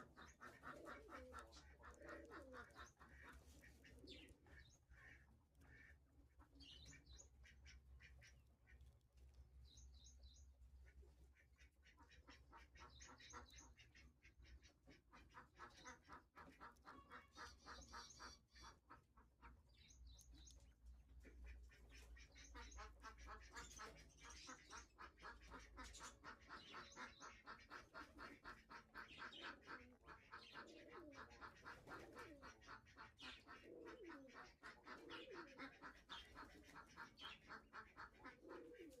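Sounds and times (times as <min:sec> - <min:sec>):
pigeon cooing: 0:00.0 - 0:04.6, 0:21.2 - 0:39.0.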